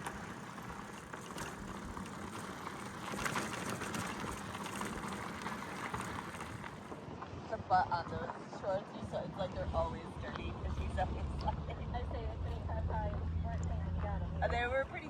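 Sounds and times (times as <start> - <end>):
small stones crackling and rattling: 0.0 - 6.9
bicycle tyre noise on dirt: 0.0 - 7.5.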